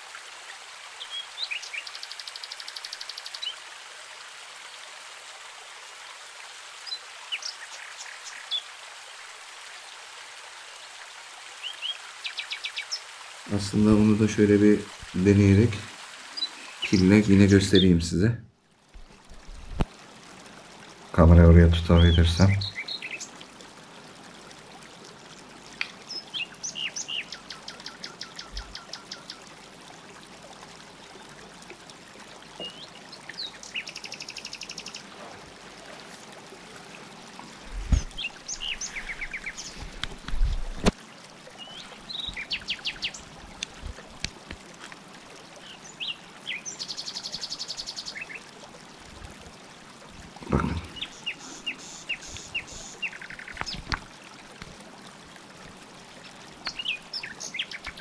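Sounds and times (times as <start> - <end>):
water trickling: 0.0 - 58.0
small birds chirping: 1.0 - 3.6, 21.8 - 23.4, 25.8 - 29.4, 32.5 - 35.1, 37.8 - 40.6, 41.6 - 43.3, 45.6 - 48.5, 50.5 - 54.0, 56.2 - 58.0.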